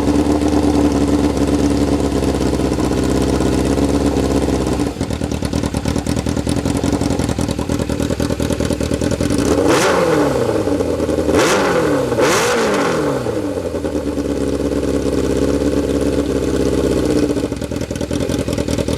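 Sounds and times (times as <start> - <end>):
motorcycle engine idling: 0.0 - 18.9
motorcycle engine revving: 0.0 - 18.9.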